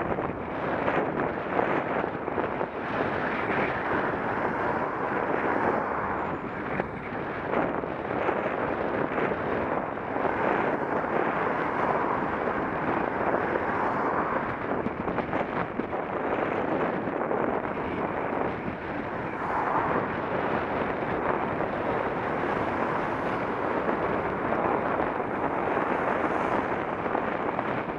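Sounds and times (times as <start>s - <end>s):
wind rushing over microphone: 0.0s - 27.9s.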